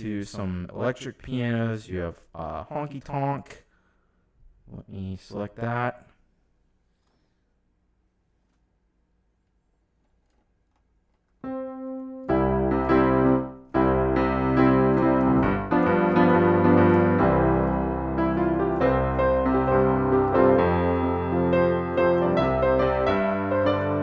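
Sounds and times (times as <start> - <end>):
honky-tonk piano chords: 11.4 - 24.0.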